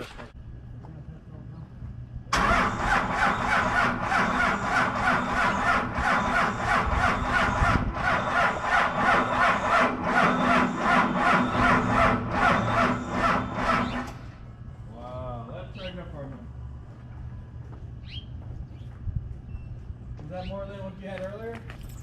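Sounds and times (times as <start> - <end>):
diesel engine cranking on starter: 2.3 - 14.4.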